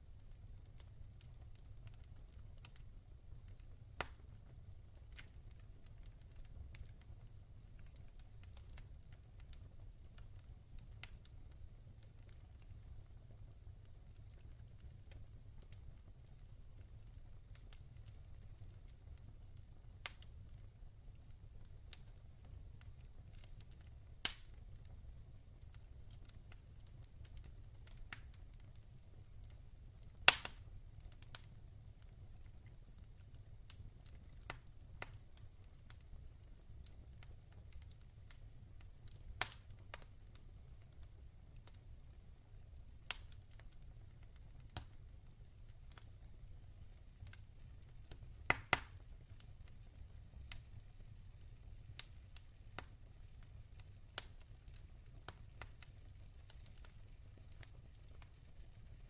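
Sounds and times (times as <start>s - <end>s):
log fire crackling: 0.0s - 59.0s.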